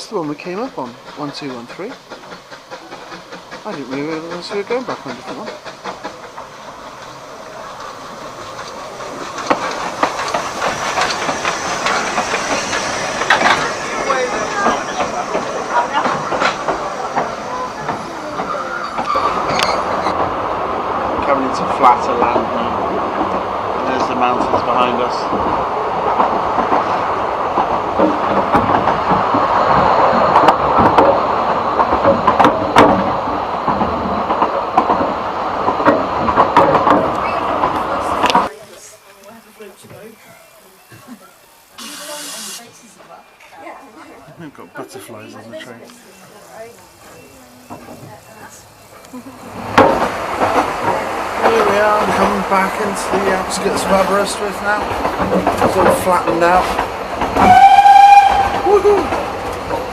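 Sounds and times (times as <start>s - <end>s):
train carriage rushing hiss: 0.0s - 43.4s, 45.8s - 59.9s
wheels clattering on track: 0.0s - 59.9s
sharp clicks and knocks: 0.8s - 13.8s, 27.5s - 38.5s.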